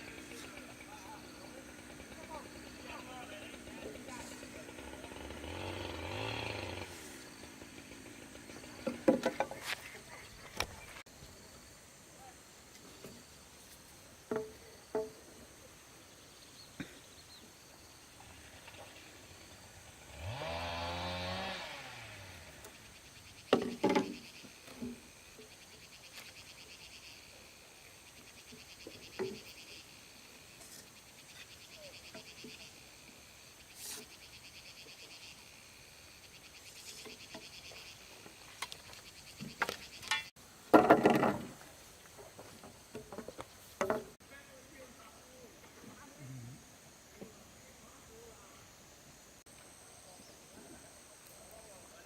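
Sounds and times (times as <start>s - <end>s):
insect buzzing: 0.0s - 8.8s, 17.4s - 40.1s
wooden knocks: 14.3s - 15.2s, 23.5s - 24.2s, 40.7s - 41.6s, 42.9s - 44.2s.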